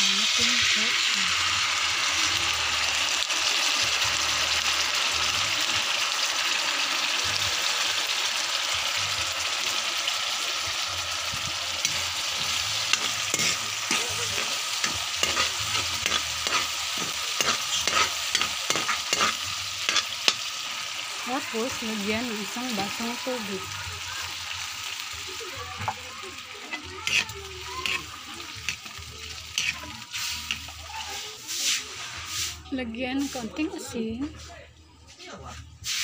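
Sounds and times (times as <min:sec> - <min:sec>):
vegetables sizzling in a wok: 0:00.0 - 0:34.6, 0:35.4 - 0:36.0
spatula scraping a wok: 0:11.3 - 0:20.9, 0:26.6 - 0:33.6.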